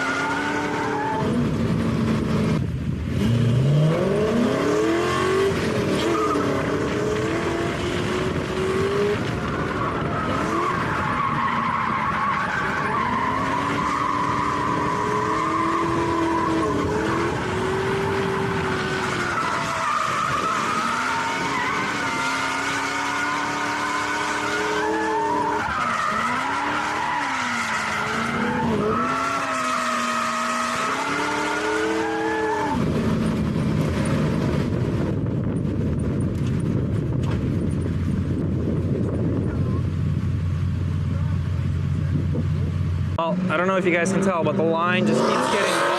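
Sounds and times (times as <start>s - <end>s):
tyres squealing and skidding: 0.0s - 1.5s, 4.6s - 33.4s, 43.3s - 45.9s
car engine revving hard: 0.0s - 34.8s, 43.2s - 45.9s.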